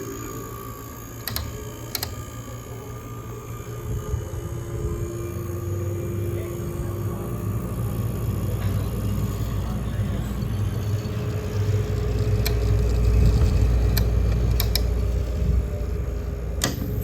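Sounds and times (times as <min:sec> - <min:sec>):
refrigeration compressor humming: 0:00.0 - 0:17.0
sharp clicks: 0:01.2 - 0:02.3, 0:11.0 - 0:15.6.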